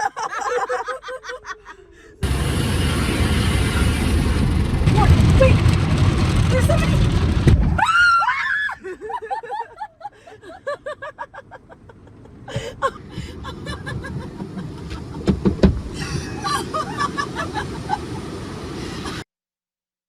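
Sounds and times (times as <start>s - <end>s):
steady rushing noise: 2.2s - 7.8s, 13.0s - 19.2s
sharp knocks: 15.2s - 15.8s.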